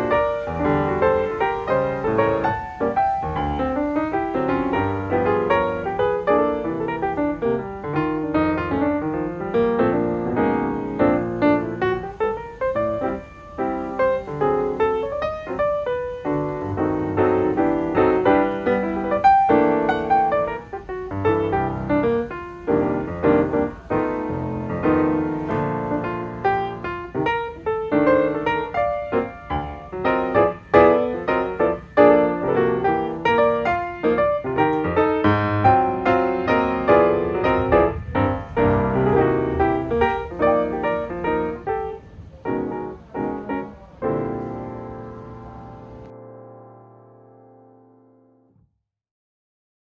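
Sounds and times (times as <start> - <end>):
piano music: 0.0 - 48.5.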